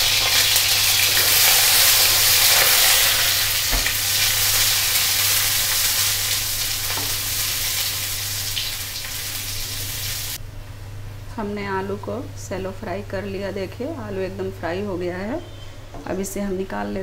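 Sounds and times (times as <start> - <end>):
potatoes sizzling in hot oil: 0.0 - 10.4.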